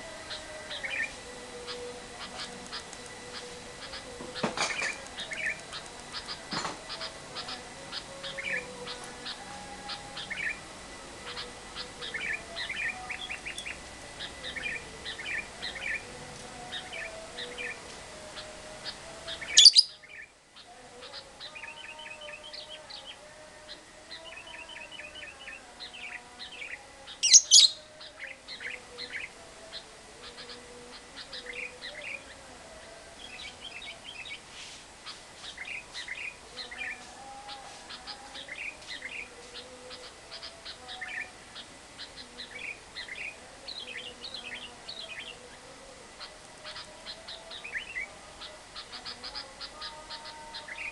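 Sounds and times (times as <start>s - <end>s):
lovebird chirping: 11.2s - 50.9s
loud shrill bird calls: 18.4s - 20.3s, 26.0s - 28.8s.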